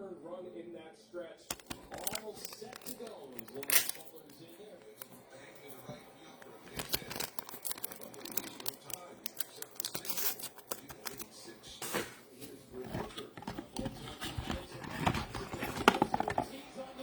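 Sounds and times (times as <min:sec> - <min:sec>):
card pack wrappers tearing: 0:01.5 - 0:05.0, 0:06.6 - 0:11.4
cards clicking: 0:01.5 - 0:05.1, 0:06.5 - 0:11.4.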